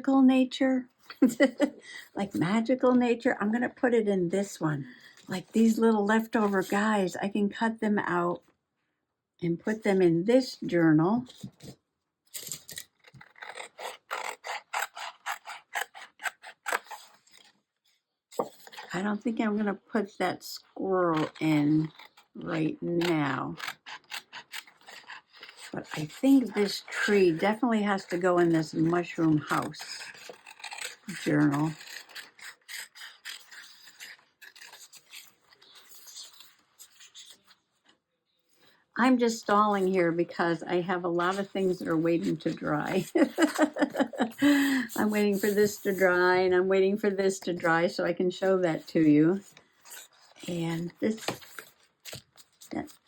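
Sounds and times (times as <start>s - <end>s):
scissors snipping paper: 11.3s - 17.5s, 21.1s - 37.6s, 41.2s - 46.2s, 48.8s - 53.0s.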